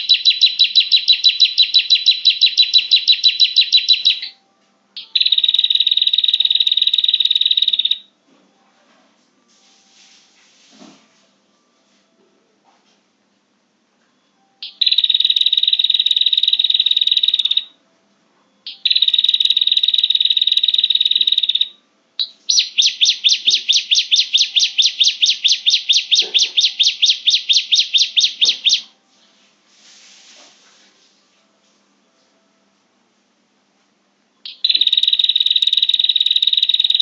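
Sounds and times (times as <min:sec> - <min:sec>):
bird repeated chirps: 0:00.0 - 0:04.4, 0:05.0 - 0:08.1, 0:14.6 - 0:17.7, 0:18.6 - 0:28.9, 0:34.4 - 0:37.0.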